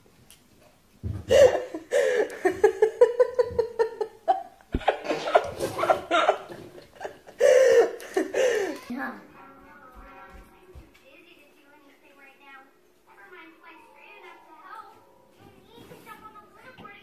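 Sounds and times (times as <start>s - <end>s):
person laughing: 1.3s - 8.9s.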